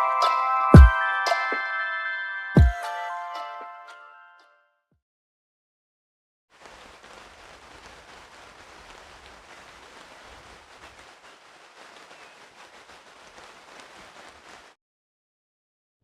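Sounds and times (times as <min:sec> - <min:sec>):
rain falling: 0:06.5 - 0:14.8.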